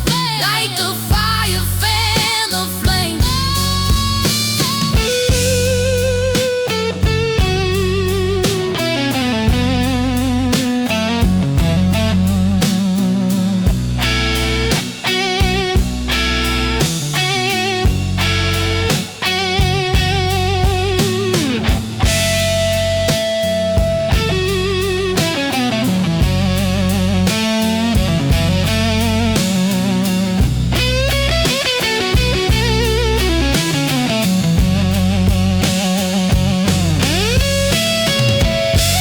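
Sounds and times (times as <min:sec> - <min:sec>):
bass: 0:00.0 - 0:39.0
drum kit: 0:00.0 - 0:39.0
electric guitar lead: 0:03.2 - 0:39.0.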